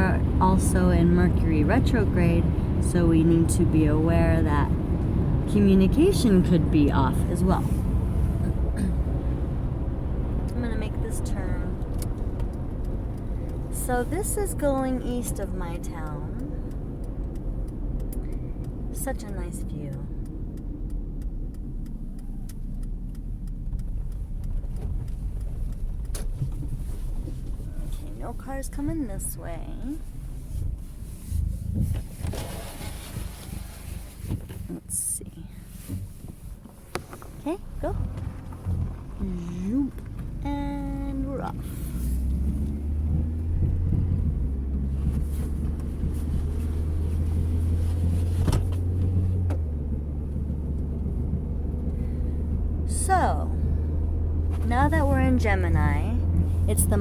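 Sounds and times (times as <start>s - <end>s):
car engine and road rumble: 0.0s - 57.0s
small sharp ticks: 11.8s - 13.8s, 15.8s - 27.6s.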